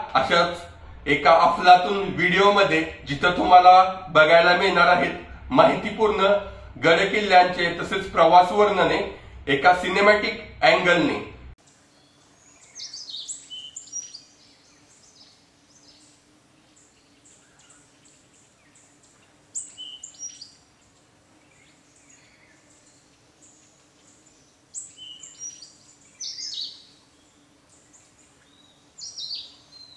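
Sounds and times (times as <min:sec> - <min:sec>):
faint low hum: 0:00.0 - 0:29.9
birds chirping: 0:11.6 - 0:29.9.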